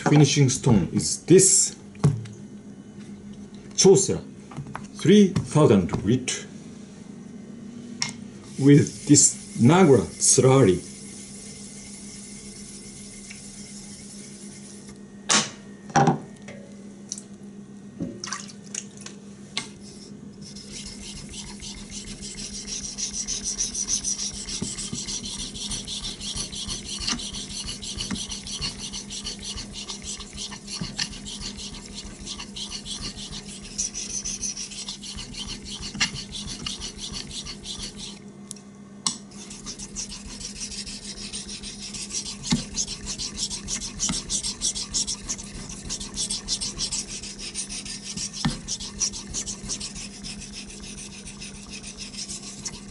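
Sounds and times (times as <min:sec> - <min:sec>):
knife scraping on whetstone: 0:19.8 - 0:38.2, 0:39.3 - 0:52.9.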